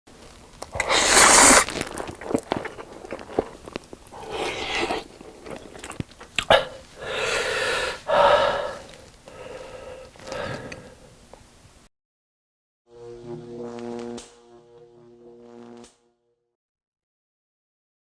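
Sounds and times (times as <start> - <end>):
person chewing food: 0.5 - 11.0.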